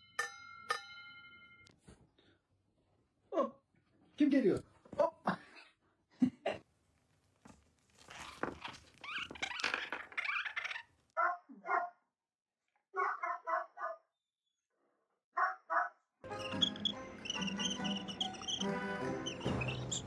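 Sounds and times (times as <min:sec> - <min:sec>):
animal barking: 0:11.2 - 0:12.0, 0:13.0 - 0:14.1, 0:15.4 - 0:16.0.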